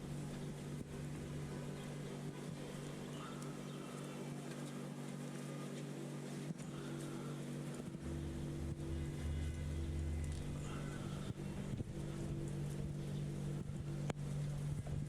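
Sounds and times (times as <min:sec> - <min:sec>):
faint high whines: 0:00.0 - 0:15.0
low mechanical hum: 0:00.0 - 0:15.0.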